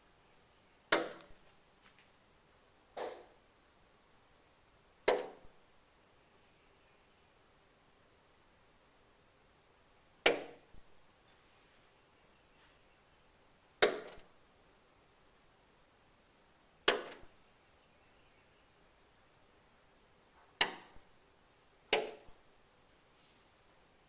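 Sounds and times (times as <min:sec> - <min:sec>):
bird knocking on glass: 0:16.9 - 0:17.3.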